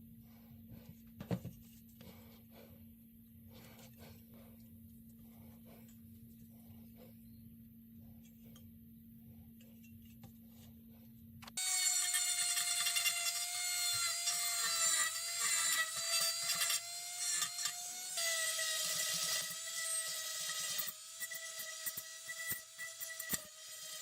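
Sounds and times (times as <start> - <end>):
electric power tool whining: 11.5 - 24.0.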